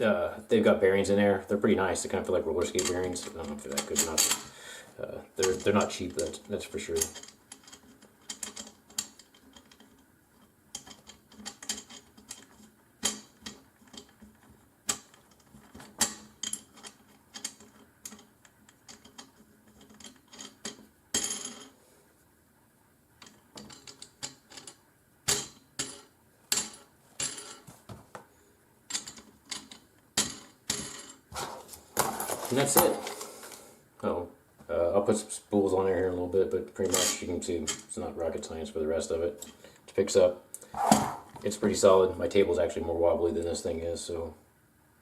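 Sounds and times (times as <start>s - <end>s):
metal parts clicking and clinking: 5.4s - 21.7s.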